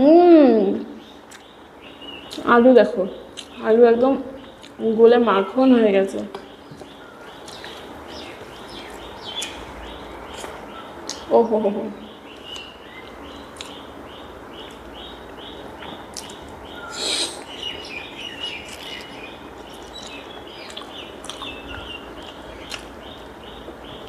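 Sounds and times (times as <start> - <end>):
bird chirping: 0.6 - 24.0
chewing sounds: 6.8 - 7.9, 10.3 - 11.3, 13.5 - 13.8, 15.8 - 16.5, 18.5 - 23.3.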